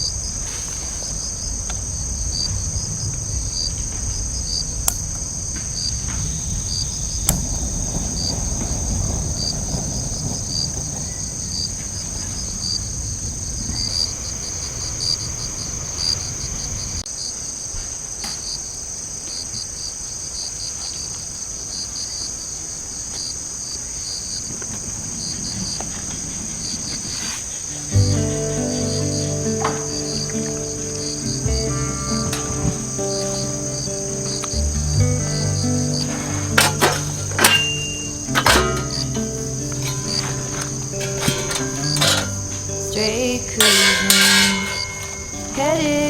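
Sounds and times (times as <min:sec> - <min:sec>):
crickets trilling: 0:00.0 - 0:46.0
firewood crackling and popping: 0:00.1 - 0:17.0, 0:27.9 - 0:46.0.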